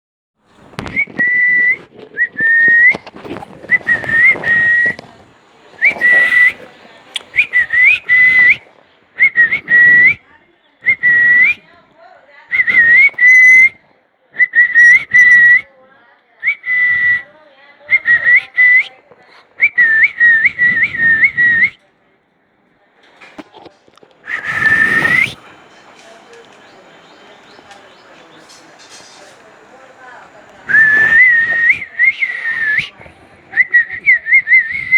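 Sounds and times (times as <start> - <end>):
person whistling: 3.7 - 5.0, 5.8 - 6.6, 24.3 - 25.4, 30.7 - 33.0.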